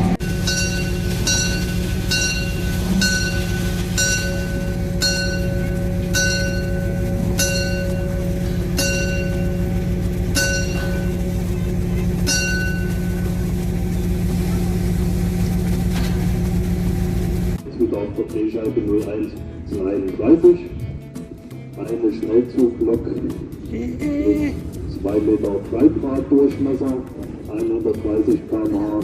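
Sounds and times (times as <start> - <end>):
steady low hum: 0.0 - 17.9
bell strokes: 0.2 - 14.2.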